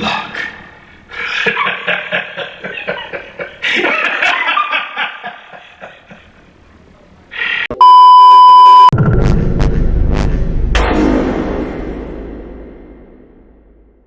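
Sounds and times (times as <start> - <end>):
loud electronic beep: 7.8 - 13.5
rhythmic soundtrack music: 9.0 - 14.0.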